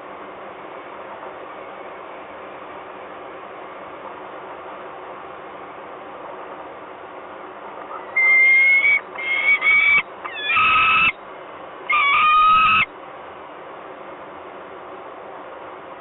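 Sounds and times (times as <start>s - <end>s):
falcon calling: 7.9s - 11.2s, 11.9s - 12.9s.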